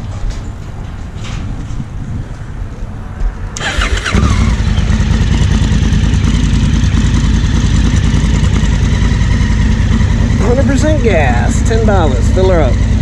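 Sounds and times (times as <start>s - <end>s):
motorcycle starter cranking: 3.6s - 6.2s
motorcycle engine idling: 3.6s - 13.0s.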